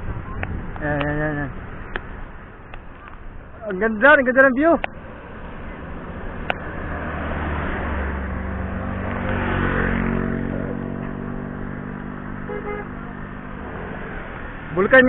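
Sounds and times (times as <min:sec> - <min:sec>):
vehicle engine passing: 0:00.0 - 0:15.0.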